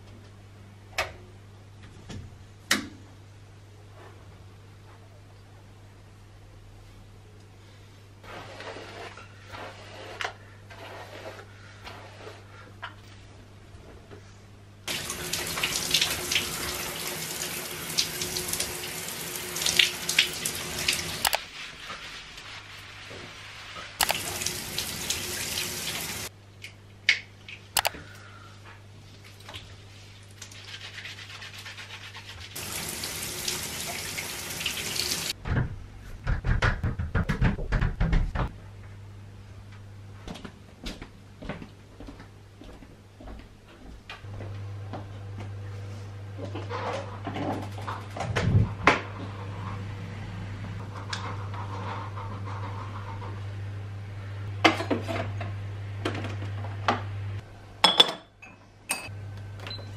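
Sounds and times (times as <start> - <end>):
sink tap running: 14.9 - 21.4, 24.0 - 26.3, 32.6 - 35.3.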